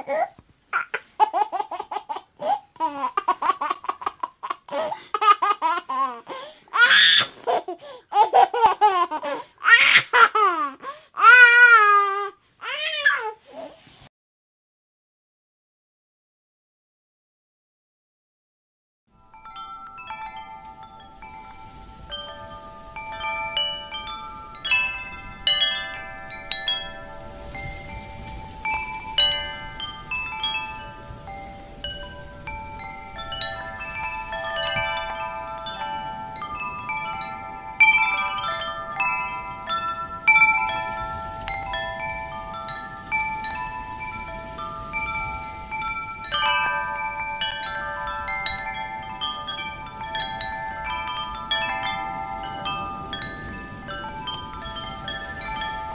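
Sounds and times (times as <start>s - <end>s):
wind chimes ringing: 19.1s - 55.9s.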